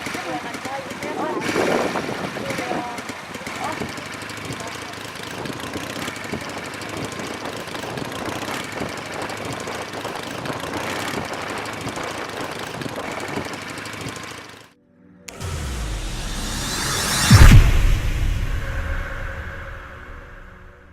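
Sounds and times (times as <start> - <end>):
motorcycle engine running: 0.0 - 20.6
dense rushing noise: 15.3 - 20.9.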